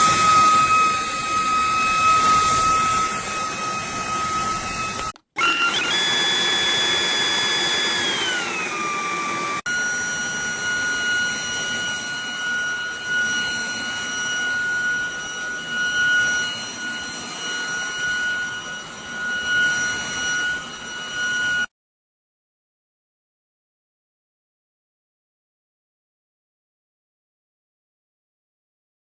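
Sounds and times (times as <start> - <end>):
vacuum motor whine: 0.0 - 21.7.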